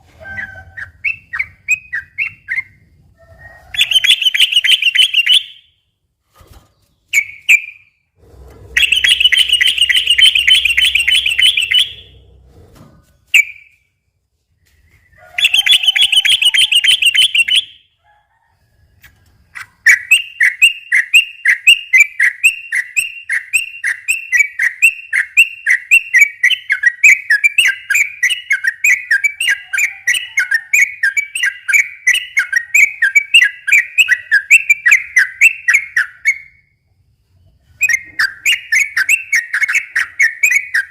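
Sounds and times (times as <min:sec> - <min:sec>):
buzzy bird trills: 0:08.7 - 0:12.3
bulbul singing: 0:08.8 - 0:12.2, 0:15.4 - 0:17.9.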